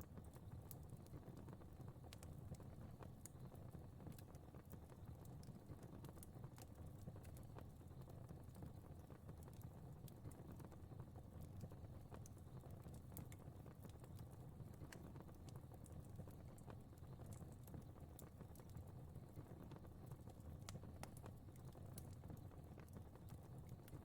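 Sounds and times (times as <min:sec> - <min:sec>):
fire pops and crackles: 0:00.1 - 0:24.0
low rumble of flames: 0:00.1 - 0:24.0.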